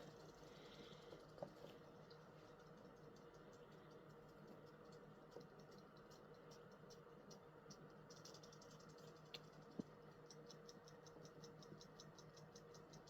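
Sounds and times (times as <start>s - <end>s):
low steady hum: 0.0s - 13.0s
soft rapid ticking: 0.0s - 13.0s
small clicks: 2.7s - 13.0s.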